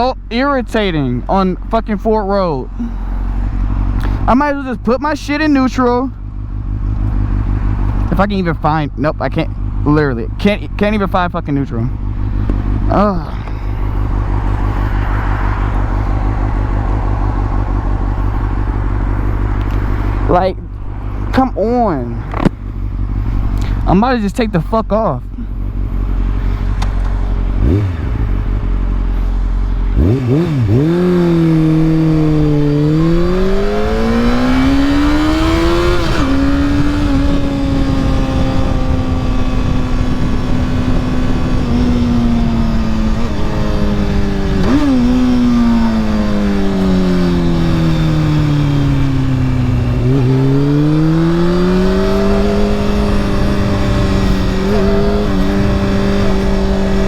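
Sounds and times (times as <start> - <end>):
low traffic rumble: 0.0 - 57.0
motorcycle engine accelerating: 2.4 - 57.0.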